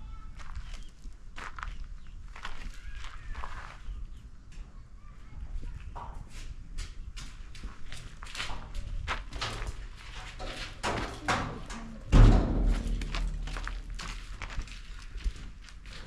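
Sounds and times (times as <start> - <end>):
heavy thud: 11.1 - 14.7.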